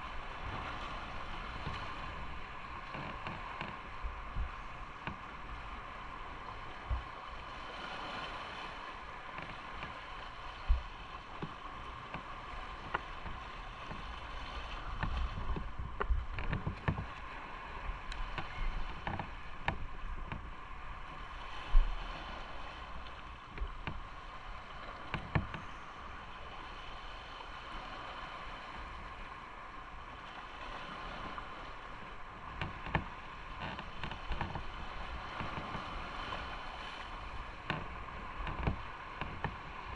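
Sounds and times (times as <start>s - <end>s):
wind noise: 12.5s - 22.9s.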